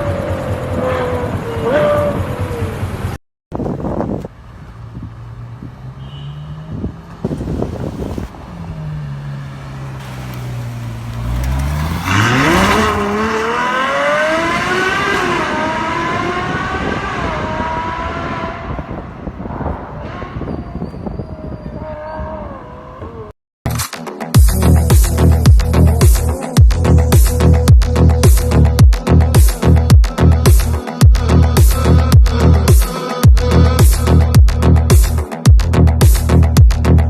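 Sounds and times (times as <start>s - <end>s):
sports car engine accelerating: 4.1s - 19.9s.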